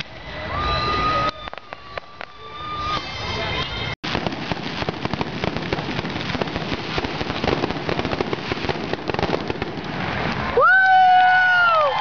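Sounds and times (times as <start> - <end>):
fireworks crackling: 0.0 - 12.0
loud firework bangs: 4.0 - 10.6.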